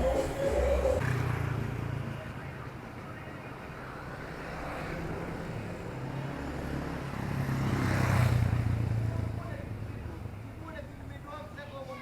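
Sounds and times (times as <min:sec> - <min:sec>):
vehicle engine approaching: 0:00.0 - 0:01.8.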